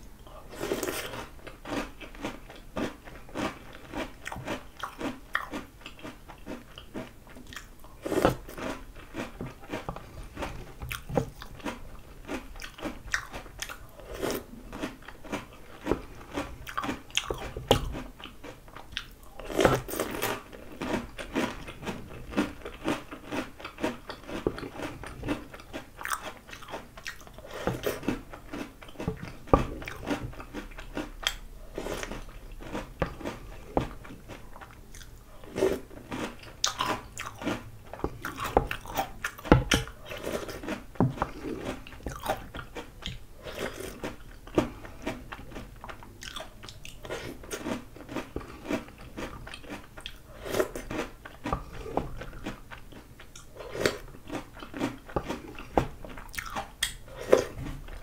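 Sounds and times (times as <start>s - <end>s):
crunching cereal: 0.5s - 45.2s.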